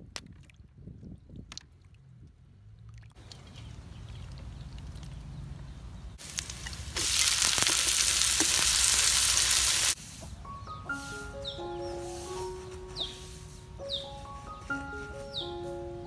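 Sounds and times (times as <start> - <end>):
food sizzling in a wok: 6.2 - 10.3.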